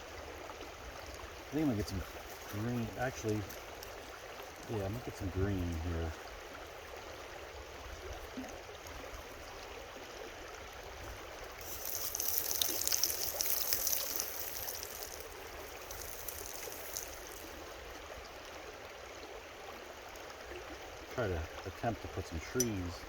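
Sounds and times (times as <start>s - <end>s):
creek water running: 0.0s - 23.0s
high hiss: 11.6s - 17.6s.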